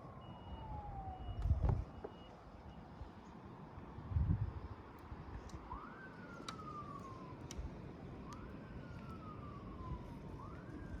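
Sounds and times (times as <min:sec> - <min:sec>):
emergency siren wailing: 0:00.0 - 0:02.4, 0:05.5 - 0:11.0.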